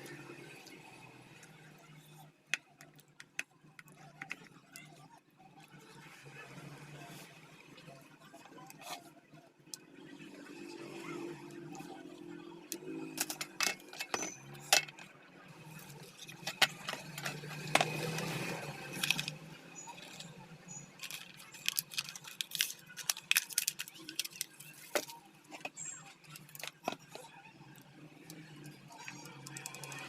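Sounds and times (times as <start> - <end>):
metal parts and tools rattling: 13.0 - 15.1, 15.8 - 27.3.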